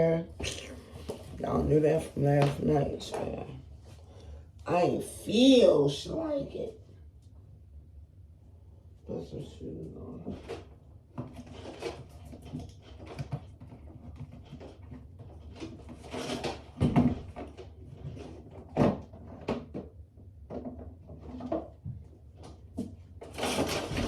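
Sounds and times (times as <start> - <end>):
household knocks and rustles: 10.0 - 24.0.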